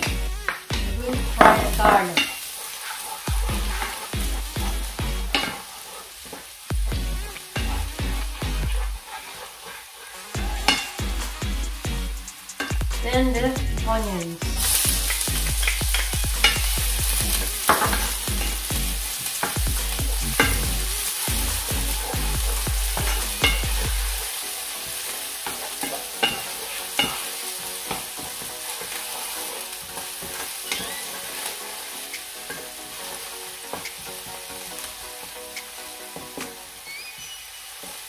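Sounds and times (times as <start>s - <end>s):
garlic and onions sizzling in oil: 0.0s - 38.0s
wooden spatula scraping pan: 1.4s - 6.5s, 7.6s - 11.0s, 25.4s - 31.8s.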